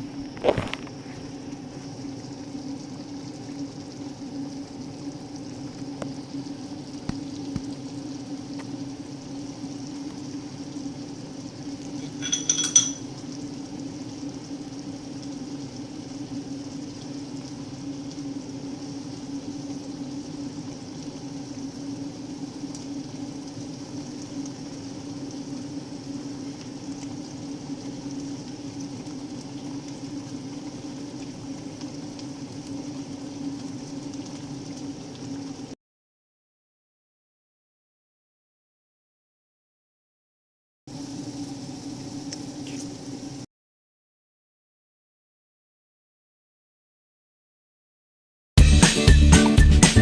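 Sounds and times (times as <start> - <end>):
kitchenware clinking: 11.9 - 13.1.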